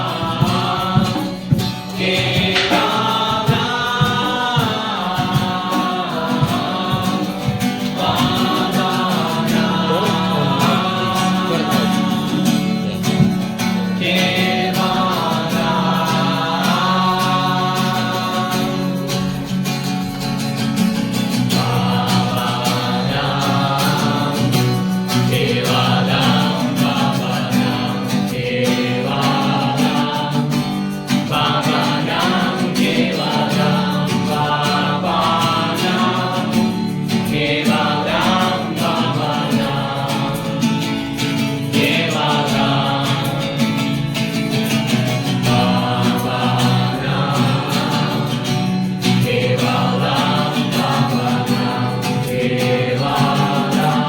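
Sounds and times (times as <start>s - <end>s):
instrumental accompaniment: 0.0s - 54.0s
voices singing together: 0.0s - 54.0s.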